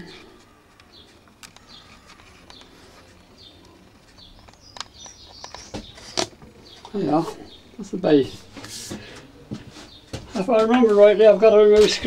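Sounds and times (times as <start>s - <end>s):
birds chirping: 0.0s - 12.0s
sharp clicks: 0.7s - 7.0s.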